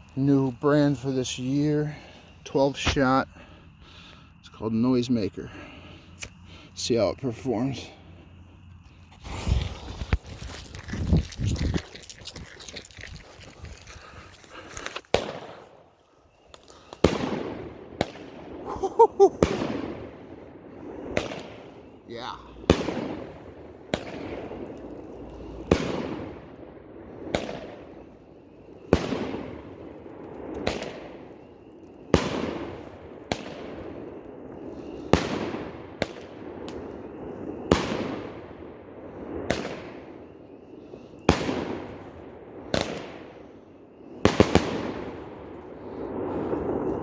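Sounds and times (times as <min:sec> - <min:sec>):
firework bangs: 0:14.8 - 0:16.0, 0:16.9 - 0:40.6, 0:41.2 - 0:43.4, 0:44.0 - 0:47.0.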